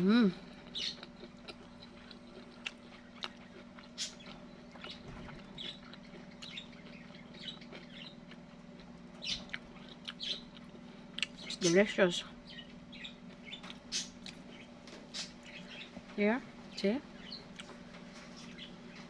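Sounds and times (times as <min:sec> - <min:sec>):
steady low hum: 0:00.0 - 0:19.0
chewing crusty fried snack: 0:00.5 - 0:11.9.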